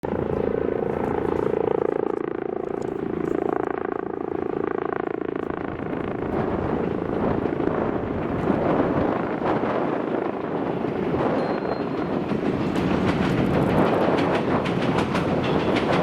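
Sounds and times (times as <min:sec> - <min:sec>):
electric train whine: 0:05.4 - 0:16.0
train rattling rumble on bridge: 0:06.1 - 0:16.0.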